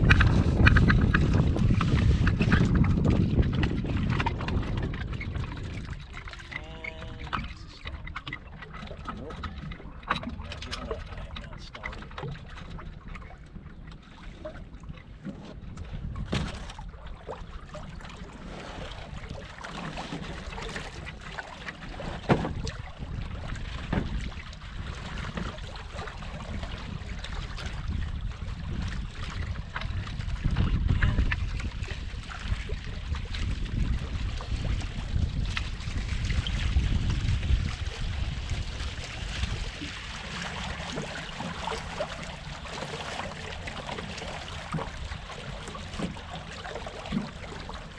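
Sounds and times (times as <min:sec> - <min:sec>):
water rushing along hull: 0:00.0 - 0:47.9
wind buffeting microphone: 0:00.0 - 0:47.9
sharp knocks or splashes: 0:16.2 - 0:16.9, 0:18.5 - 0:22.8.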